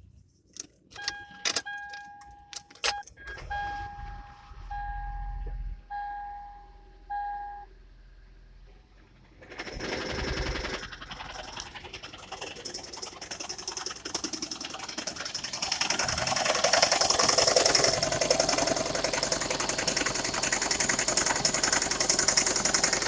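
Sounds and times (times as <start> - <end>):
car engine starting and idling rough: 0.6 - 23.0
dashboard electronic beeps: 1.0 - 7.7.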